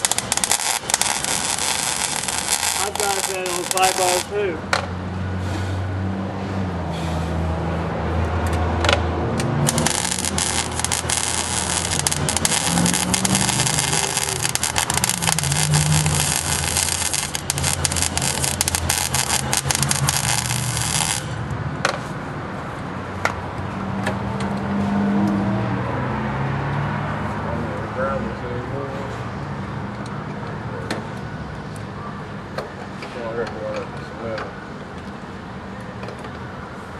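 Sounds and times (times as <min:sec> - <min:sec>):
welder arc crackling and sizzling: 0:00.0 - 0:04.6, 0:09.6 - 0:21.4.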